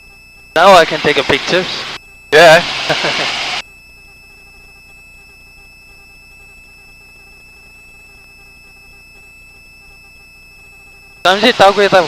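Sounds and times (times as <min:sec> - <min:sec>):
high-pitched whine: 0:00.0 - 0:12.0
helicopter low hum: 0:00.6 - 0:03.6.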